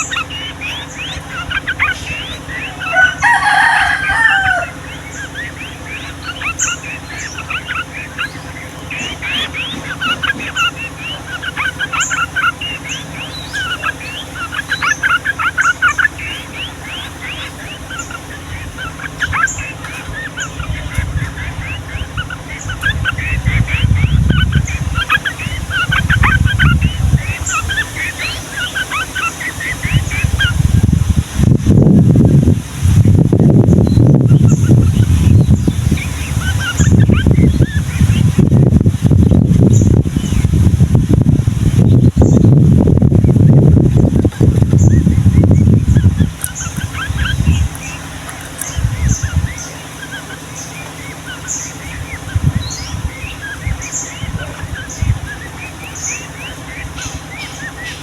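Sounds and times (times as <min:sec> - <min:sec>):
birds whistling song: 0:00.0 - 0:58.0
bulbuls chirping: 0:00.0 - 0:58.0
low rumble: 0:00.0 - 0:58.0
rooster crowing: 0:02.6 - 0:05.1.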